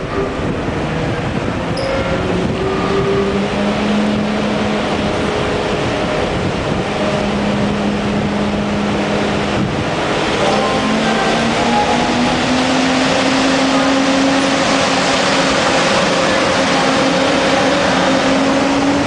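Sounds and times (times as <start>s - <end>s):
wind buffeting microphone: 0.0s - 10.4s
high-speed train rumbling: 0.0s - 19.0s.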